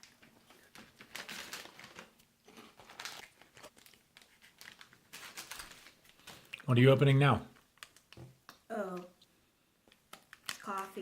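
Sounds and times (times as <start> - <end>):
plastic packaging crinkling: 0.0 - 6.6, 7.5 - 8.4, 9.9 - 11.0.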